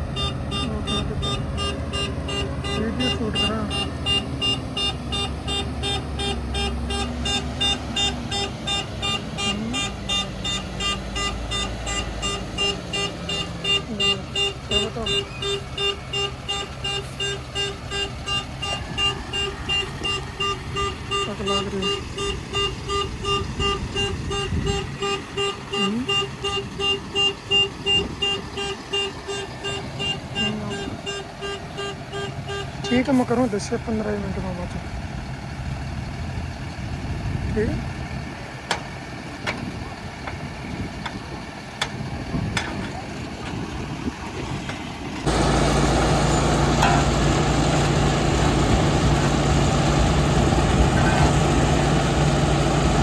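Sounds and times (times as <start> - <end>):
diesel engine rumble: 0.0 - 53.0
reversing alarm beeping: 0.1 - 33.6.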